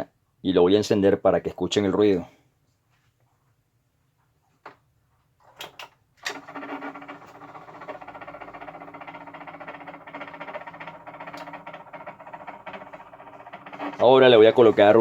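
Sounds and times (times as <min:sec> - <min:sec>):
tower fan humming with rattle: 0:06.2 - 0:15.0.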